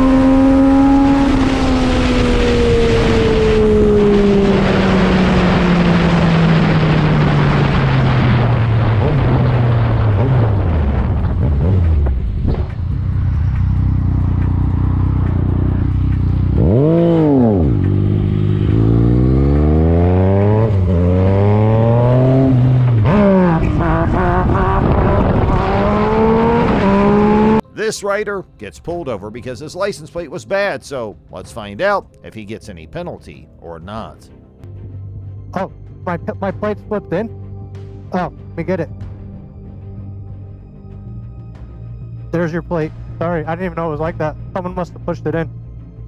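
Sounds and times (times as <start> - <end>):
motorcycle engine accelerating: 0.0 - 27.6
wind rushing: 0.7 - 15.8, 16.6 - 27.6.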